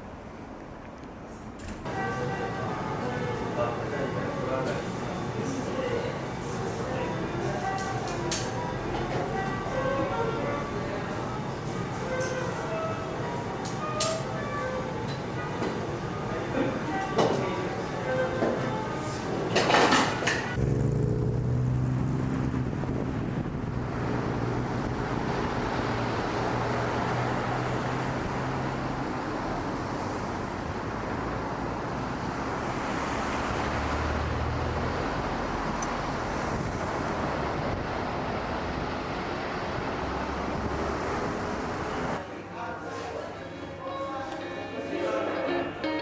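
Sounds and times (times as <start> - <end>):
vehicle running noise: 1.3 - 42.2
low engine hum: 20.6 - 42.2.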